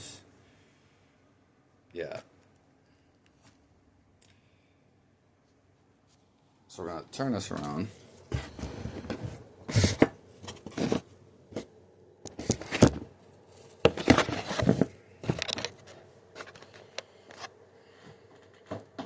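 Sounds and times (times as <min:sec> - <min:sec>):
recording device being handled: 0:07.5 - 0:19.0.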